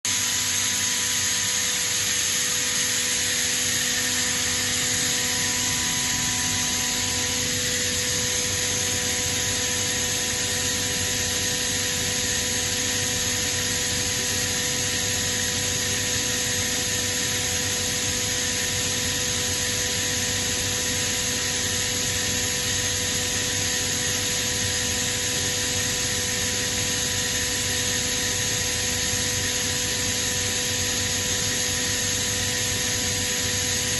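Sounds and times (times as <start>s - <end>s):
air compressor mechanical rush: 0.1s - 15.8s.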